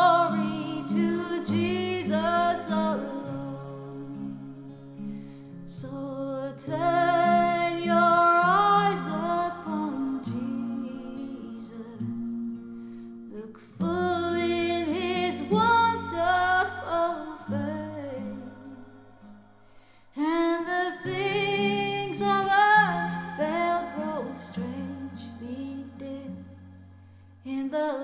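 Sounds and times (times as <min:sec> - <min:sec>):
woman singing: 0:00.0 - 0:12.6, 0:13.3 - 0:19.4, 0:20.2 - 0:28.0.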